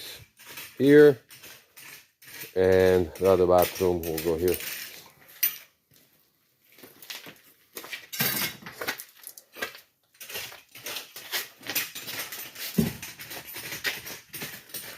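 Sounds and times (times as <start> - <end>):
hard objects clinking and knocking: 0.2 - 5.8, 7.8 - 14.9.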